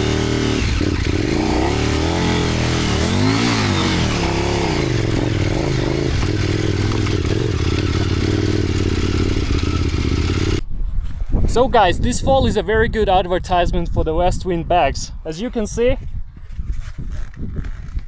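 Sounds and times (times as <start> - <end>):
motorcycle engine revving: 0.0 - 10.7.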